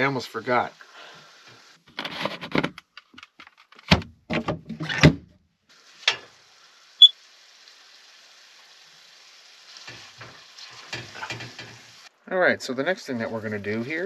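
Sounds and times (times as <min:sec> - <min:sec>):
faint steady hiss: 0:00.0 - 0:01.9, 0:05.7 - 0:14.0
knocks and rattles of handling: 0:01.9 - 0:05.4.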